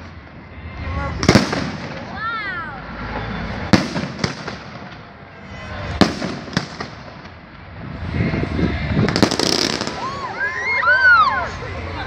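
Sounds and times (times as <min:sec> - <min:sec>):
fireworks bangs: 0:00.0 - 0:02.4, 0:03.0 - 0:10.6
rumble of fireworks bursts: 0:00.0 - 0:10.6
fireworks cracks: 0:01.1 - 0:02.4, 0:03.0 - 0:07.7, 0:09.0 - 0:10.7.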